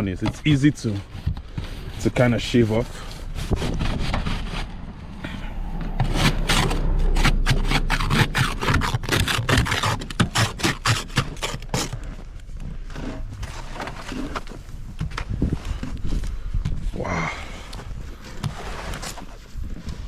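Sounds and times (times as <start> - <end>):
low rumble: 0.6 - 10.4.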